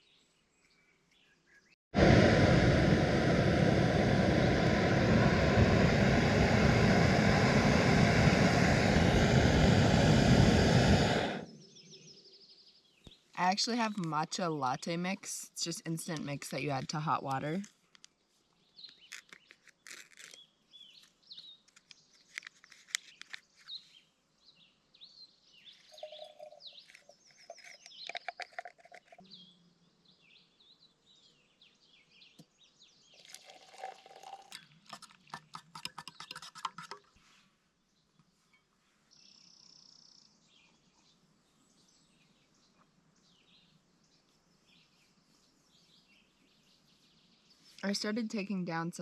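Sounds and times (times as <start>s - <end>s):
wild birds chirping: 11.0s - 14.0s, 23.1s - 34.3s.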